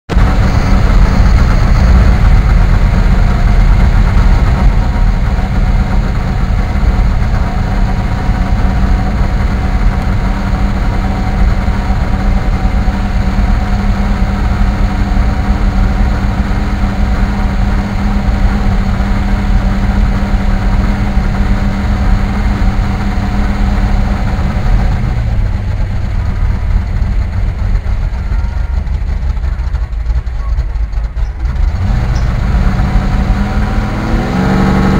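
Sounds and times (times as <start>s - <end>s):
car engine running: 0.0s - 34.9s.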